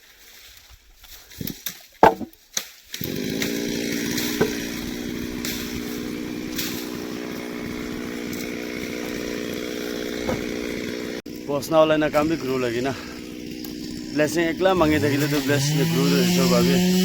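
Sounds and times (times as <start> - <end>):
sharp knocks: 2.0 - 2.3, 4.3 - 4.7, 10.1 - 10.8
chainsaw engine running: 2.9 - 17.0.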